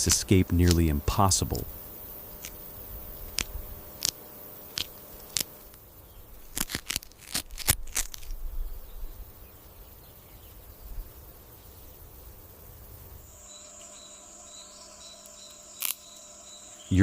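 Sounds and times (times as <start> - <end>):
sharp crackling clicks and crunches: 0.0 - 8.5, 15.0 - 16.3
faint outdoor background: 0.0 - 17.0.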